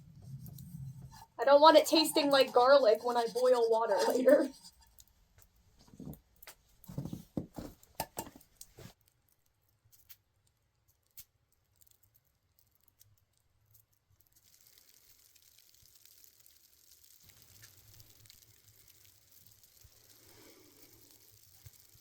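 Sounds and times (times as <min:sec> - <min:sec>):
cooking gear clicks and scrapes: 0:00.0 - 0:10.2, 0:17.2 - 0:22.0
faint steady hiss: 0:14.2 - 0:22.0.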